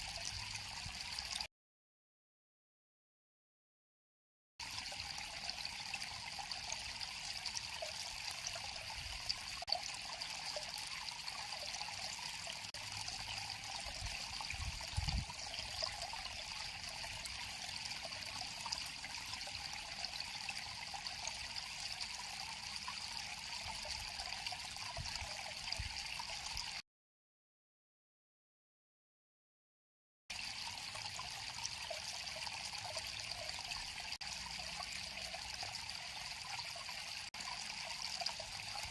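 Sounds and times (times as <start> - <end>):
river water flowing: 4.6 - 26.6, 30.4 - 38.9.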